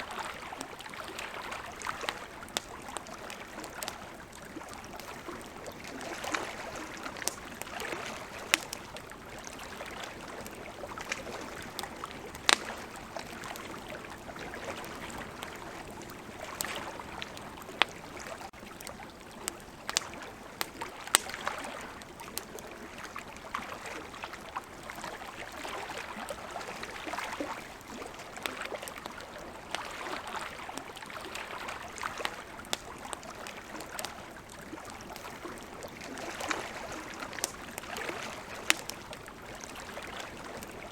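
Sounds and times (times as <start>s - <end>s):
campfire crackling and popping: 0.0s - 40.9s
river flowing: 0.0s - 40.9s.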